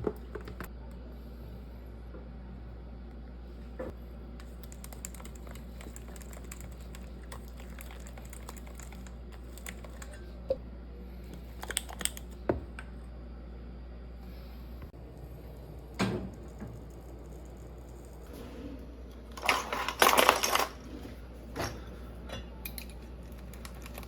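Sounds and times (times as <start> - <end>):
small irregular kitchen clicks: 0.0 - 1.0, 11.3 - 13.0, 15.1 - 24.0.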